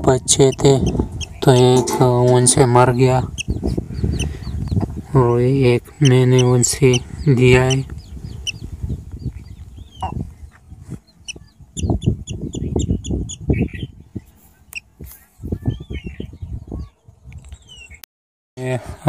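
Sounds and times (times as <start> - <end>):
bird chirping: 0.3 - 18.0
low rumbling and thumping: 0.6 - 5.8.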